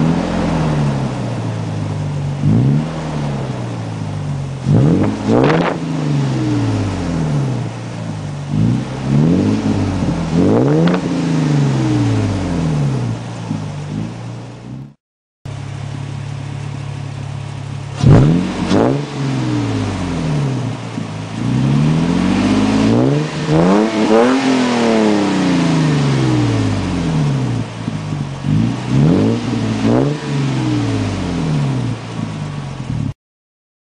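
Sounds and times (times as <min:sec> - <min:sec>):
truck engine idling and revving: 0:00.0 - 0:33.2.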